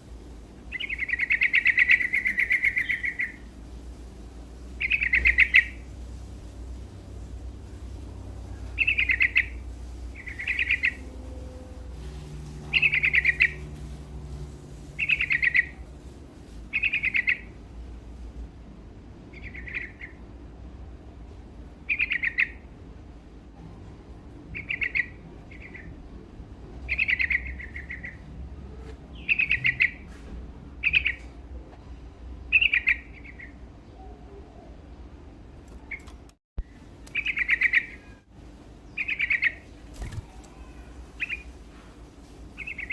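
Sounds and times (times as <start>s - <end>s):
low steady hum: 0.0s - 42.9s
bulbul singing: 0.7s - 3.5s, 4.8s - 5.9s, 8.4s - 13.8s, 14.9s - 15.8s, 16.7s - 17.5s, 24.6s - 25.9s, 26.9s - 28.2s, 32.5s - 34.7s, 35.8s - 38.2s, 38.8s - 41.6s.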